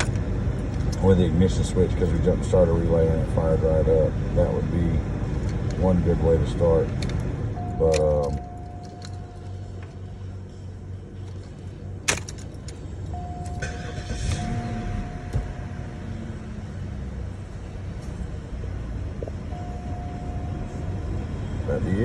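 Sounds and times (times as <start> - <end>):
ignition click: 6.9 - 9.9, 12.1 - 15.6
electronic chime tone: 13.2 - 16.3, 19.5 - 20.8.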